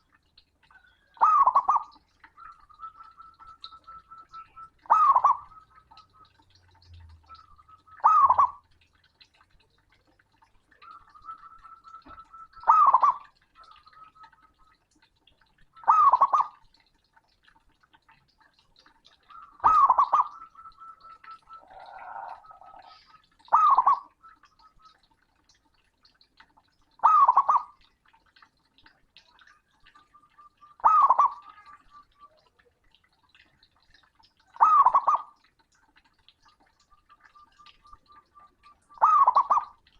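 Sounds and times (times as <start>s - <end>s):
dove cooing: 0.8s - 6.5s, 7.1s - 8.6s, 10.7s - 14.4s, 19.2s - 24.6s, 30.2s - 32.5s, 34.6s - 35.3s, 37.2s - 39.8s.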